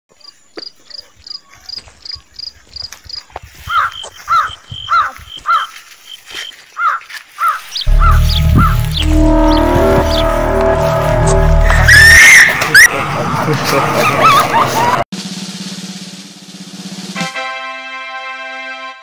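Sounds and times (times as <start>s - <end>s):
high bird notes: 7.8s - 12.9s
lower arched bird call: 7.8s - 12.9s
loud music with heavy bass: 7.9s - 12.2s.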